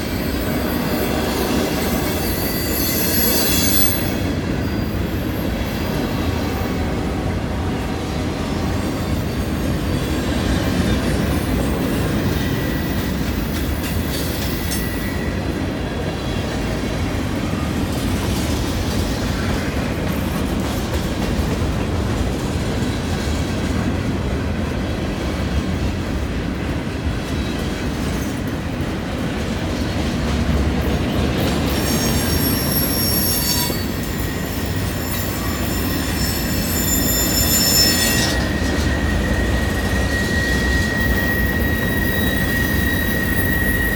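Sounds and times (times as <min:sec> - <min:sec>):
train wheels rumbling on rail: 0:00.0 - 0:43.9
wheel flange squeal: 0:00.1 - 0:06.6, 0:31.6 - 0:43.9.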